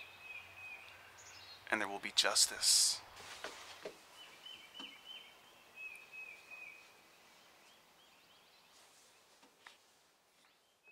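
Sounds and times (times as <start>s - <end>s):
small bird chirping: 4.1s - 9.4s.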